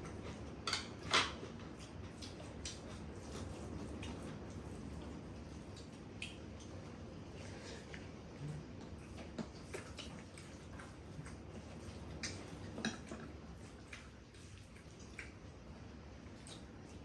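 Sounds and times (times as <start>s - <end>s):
chewing: 0.0s - 15.5s.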